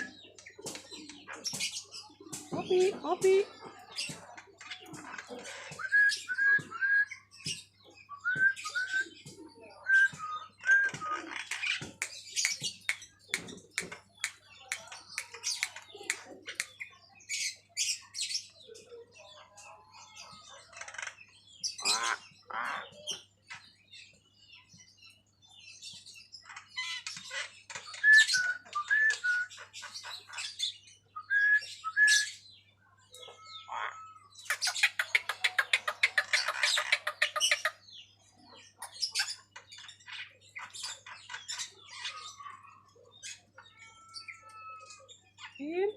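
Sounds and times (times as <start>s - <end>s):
myna calling: 33.3s - 37.8s.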